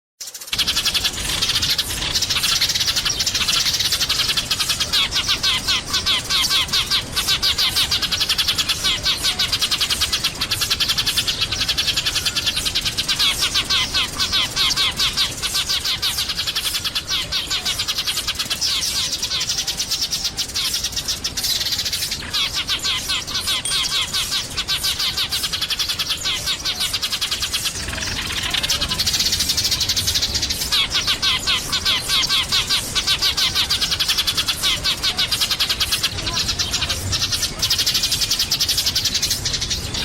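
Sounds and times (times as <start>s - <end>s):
sparrows chirping: 0.2s - 40.0s.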